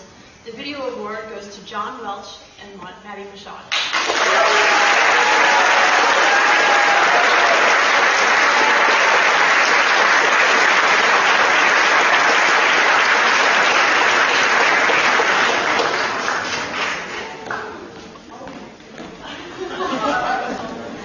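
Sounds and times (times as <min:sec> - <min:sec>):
audience applauding: 0:03.7 - 0:17.8.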